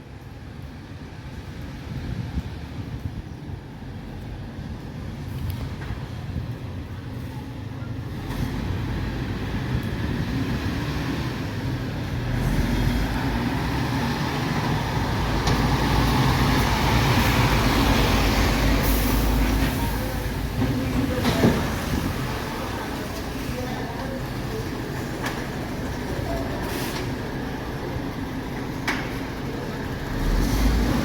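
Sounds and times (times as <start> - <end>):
diesel truck engine running: 8.1 - 31.0.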